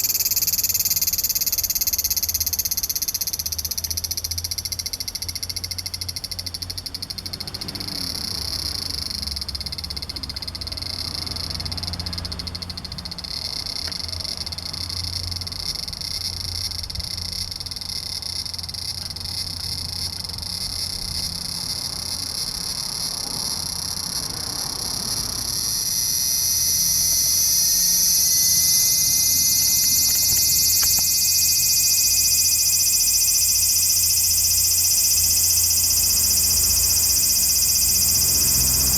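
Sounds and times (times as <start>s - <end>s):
cicada buzzing: 0.0s - 38.9s.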